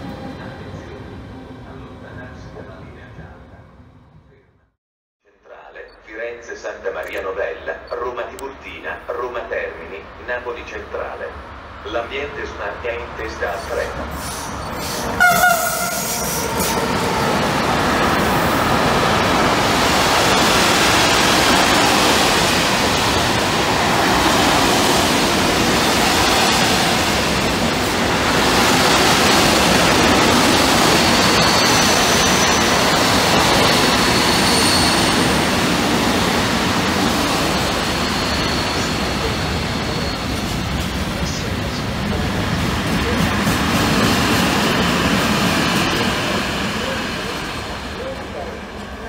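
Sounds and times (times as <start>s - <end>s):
faint high wheel squeal: 13.5s - 16.8s, 30.8s - 32.9s, 33.6s - 35.4s, 37.5s - 40.5s
train horn: 15.2s - 16.4s.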